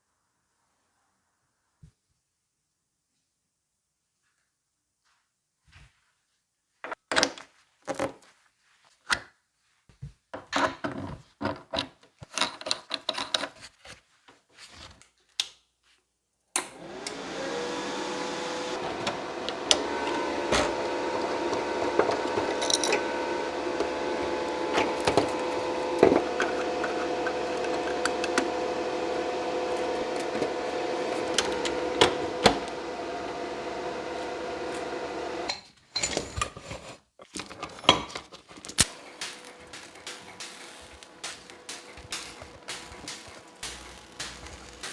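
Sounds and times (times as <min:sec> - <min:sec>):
electric power tool whining: 0:16.6 - 0:35.6, 0:38.8 - 0:44.9.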